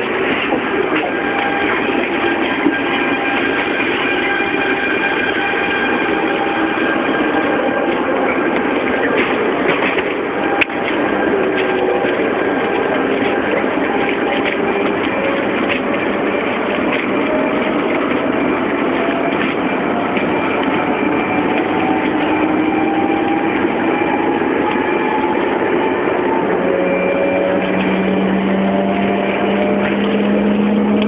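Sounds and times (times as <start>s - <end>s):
train running noise: 0.0s - 31.0s
rising motor whine: 10.4s - 31.0s.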